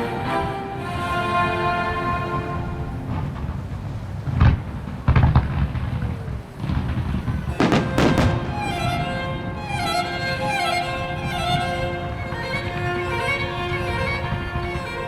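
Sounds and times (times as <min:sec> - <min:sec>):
orchestral music with strings: 0:00.0 - 0:03.8, 0:07.5 - 0:15.0
fireworks bangs: 0:02.8 - 0:14.8
fireworks sharp cracks: 0:03.0 - 0:09.9.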